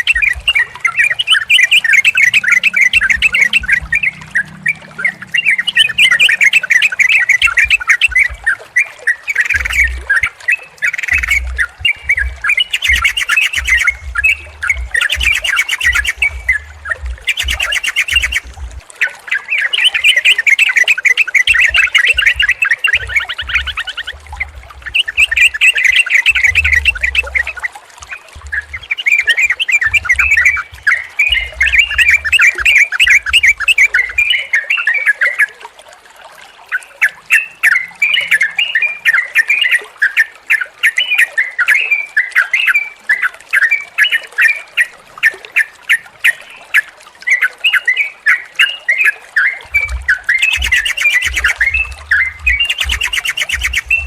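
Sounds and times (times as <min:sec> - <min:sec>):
birds chattering and singing: 0:00.0 - 0:18.8, 0:19.4 - 0:34.5, 0:49.4 - 0:54.0
low rumble: 0:09.6 - 0:10.1, 0:11.2 - 0:18.8, 0:22.3 - 0:25.2, 0:26.3 - 0:27.6, 0:28.4 - 0:28.9, 0:29.8 - 0:33.7, 0:49.7 - 0:54.0.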